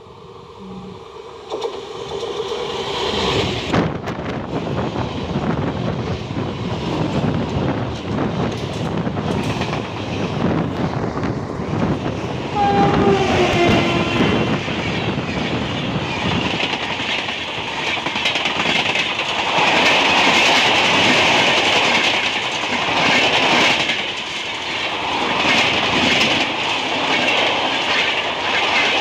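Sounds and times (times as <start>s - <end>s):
locomotive horn: 0.6s - 1.2s, 12.5s - 14.8s
train horn: 0.6s - 1.3s, 12.4s - 14.9s
train wheels clattering: 5.7s - 11.2s, 12.7s - 29.0s.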